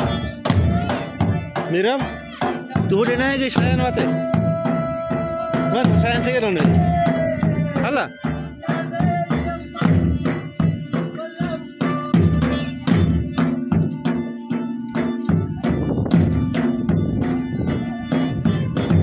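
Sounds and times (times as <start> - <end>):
drum beating a driving rhythm: 0.0 - 19.0.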